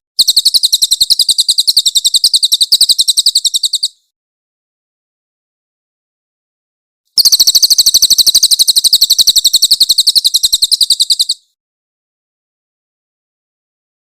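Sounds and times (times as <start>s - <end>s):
jay calling rapid high notes: 7.2s - 11.4s.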